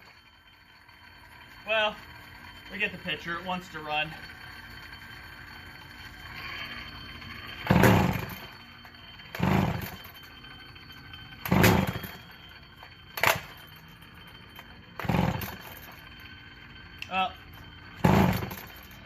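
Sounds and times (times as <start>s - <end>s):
chainsaw engine revving: 7.7s - 8.4s, 9.3s - 10.0s, 11.4s - 12.2s, 15.0s - 15.7s, 18.0s - 18.6s.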